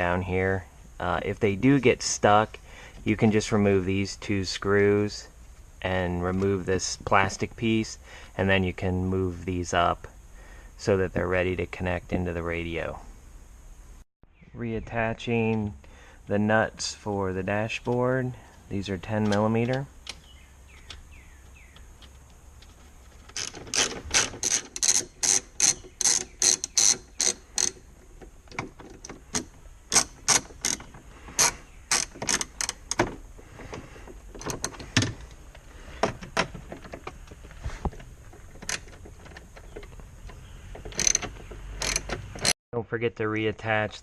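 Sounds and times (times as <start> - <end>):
ratchet wrench clicking: 23.3 - 27.8, 40.9 - 42.5.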